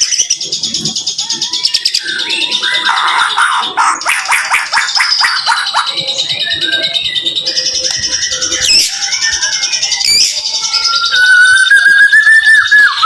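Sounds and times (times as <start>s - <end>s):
bird singing trills: 0.0s - 13.0s
sharp sweeping bird notes: 2.0s - 6.9s.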